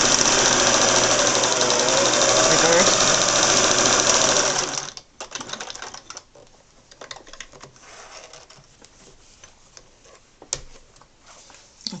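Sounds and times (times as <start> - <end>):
sewing machine running fast: 0.0 - 6.0.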